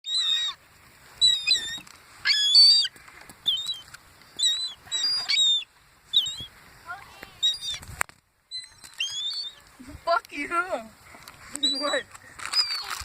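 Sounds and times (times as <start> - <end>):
seagulls calling: 0.0 - 0.6, 1.2 - 6.5, 7.4 - 7.9, 8.5 - 9.7, 11.5 - 13.0.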